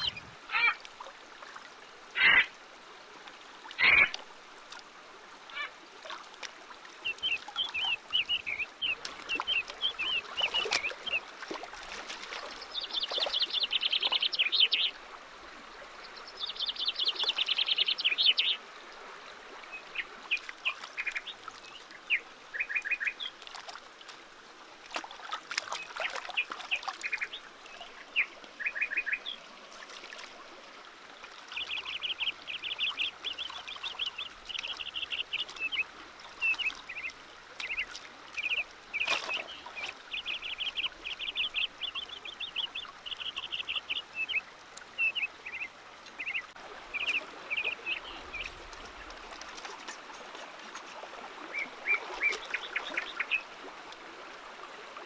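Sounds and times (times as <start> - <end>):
stream water running: 0.0 - 55.0
bird trilling: 2.2 - 2.5.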